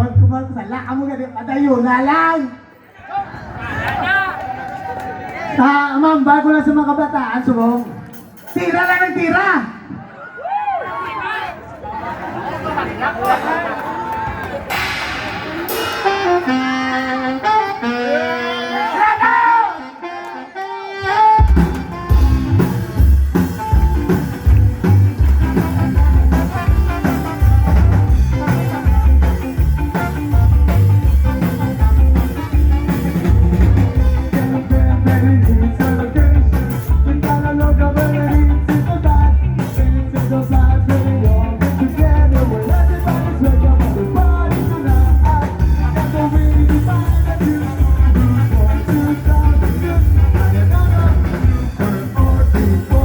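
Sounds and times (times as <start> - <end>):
live rock band playing: 14.6 - 19.2, 19.8 - 53.0.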